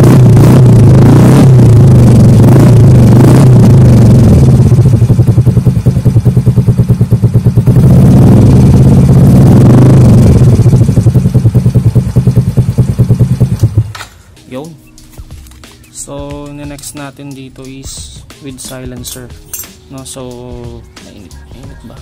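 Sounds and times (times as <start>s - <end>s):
scooter engine revving and idling: 0.0s - 14.0s.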